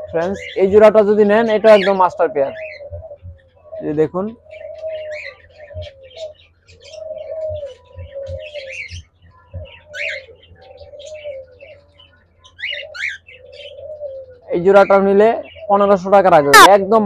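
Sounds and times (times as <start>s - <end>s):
doves cooing: 0.0s - 17.0s
high chirps: 16.4s - 16.8s.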